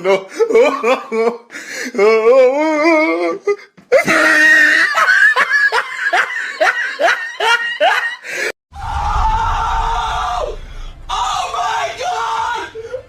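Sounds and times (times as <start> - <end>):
low rumble: 8.7 - 13.0.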